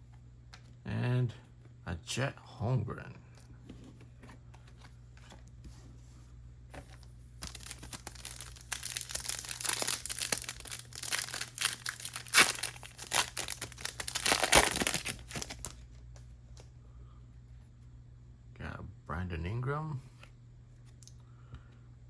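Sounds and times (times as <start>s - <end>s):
plastic wrapper tearing and crinkling: 7.0s - 15.8s.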